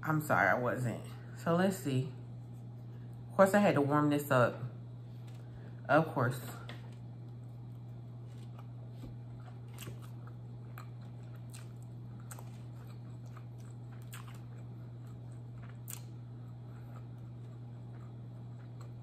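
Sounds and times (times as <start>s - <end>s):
steady low hum: 0.0s - 19.0s
person chewing food: 6.9s - 19.0s.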